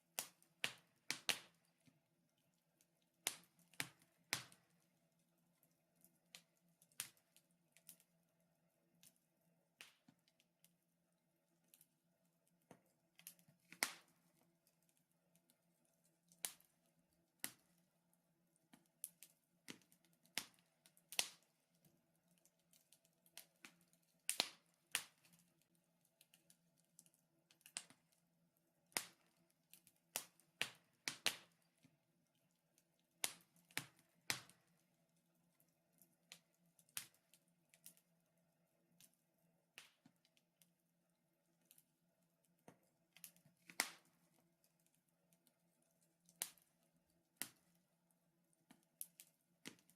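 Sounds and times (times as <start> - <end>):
wood fire crackling and popping: 0.0 - 8.0, 9.8 - 10.5, 12.6 - 17.9, 18.6 - 28.2, 28.8 - 38.0, 39.8 - 40.4, 42.6 - 44.9, 45.8 - 46.8, 47.4 - 47.7, 48.7 - 49.9.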